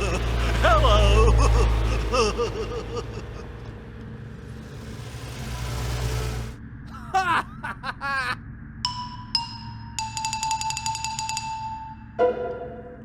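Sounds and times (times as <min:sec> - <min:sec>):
cartoon engine rumbling: 0:00.0 - 0:08.4.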